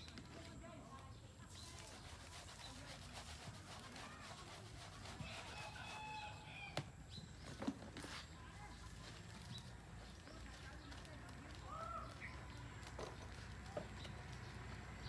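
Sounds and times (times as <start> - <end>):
rooster crowing faintly: 5.2 - 6.9.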